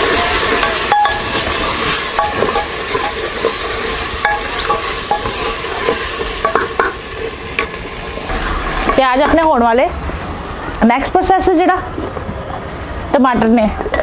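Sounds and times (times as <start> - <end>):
ladle clinking and scraping pot: 0.0 - 7.8
paste sizzling in hot oil: 0.0 - 10.3.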